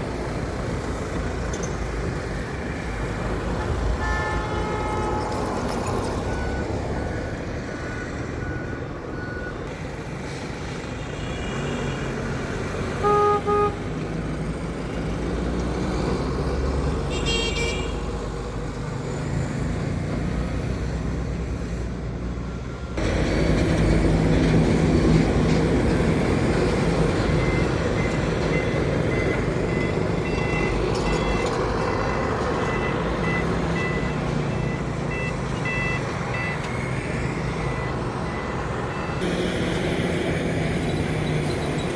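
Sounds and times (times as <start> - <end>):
truck engines and road traffic: 0.0 - 41.9
vehicle horn tooting: 3.6 - 5.7, 13.0 - 13.9, 17.1 - 18.1.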